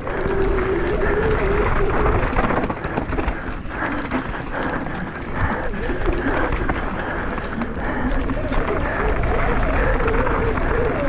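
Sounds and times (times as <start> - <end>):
wind and tyre noise: 0.0 - 11.0.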